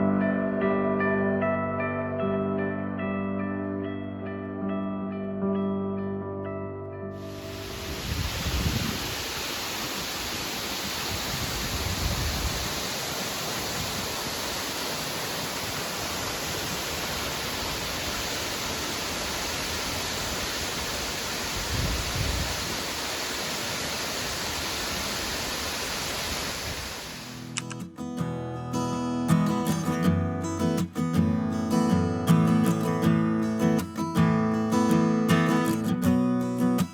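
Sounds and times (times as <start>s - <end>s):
waterfall roaring: 7.2s - 27.6s
wind on microphone: 7.4s - 18.4s, 19.4s - 27.1s.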